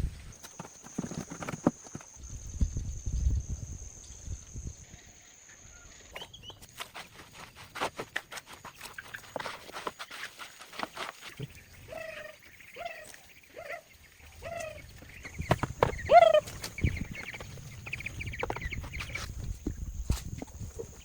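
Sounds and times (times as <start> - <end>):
knocks and handling noises: 0.4 - 2.1
poultry calling: 15.6 - 18.9.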